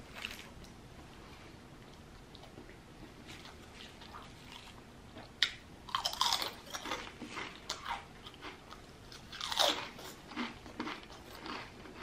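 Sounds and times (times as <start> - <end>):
crunching potato chips: 5.4 - 12.0.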